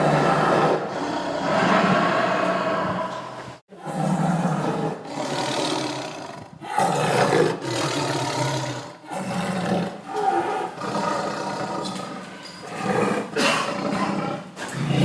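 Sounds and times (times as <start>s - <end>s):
tiger roaring: 0.0s - 15.0s.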